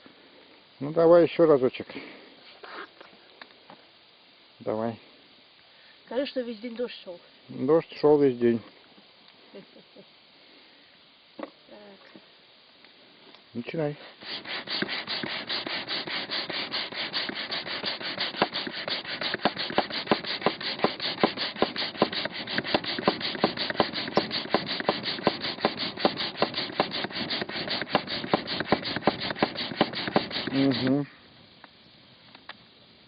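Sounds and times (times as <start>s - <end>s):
air pump rasping whoosh: 14.0s - 31.0s.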